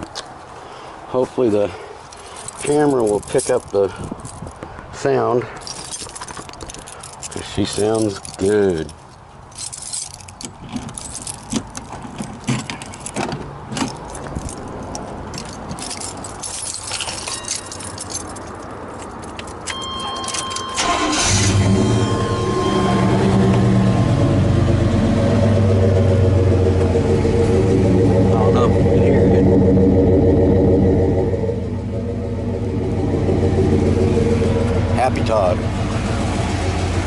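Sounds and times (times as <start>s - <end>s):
keys jangling: 2.1s - 4.6s, 5.5s - 21.4s
electronic chime: 19.7s - 25.0s
pickup engine deep idle: 31.6s - 37.0s.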